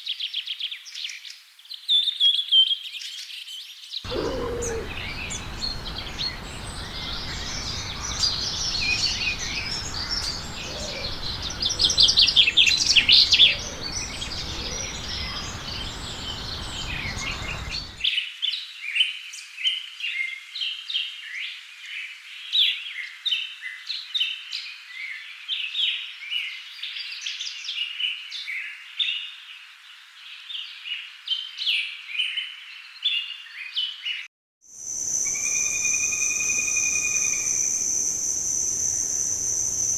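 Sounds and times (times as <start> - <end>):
bird rapid trill: 4.1 - 18.0, 34.9 - 39.9
birds chirping and calling: 4.1 - 18.0, 35.0 - 39.9
steady rushing background noise: 4.1 - 18.0.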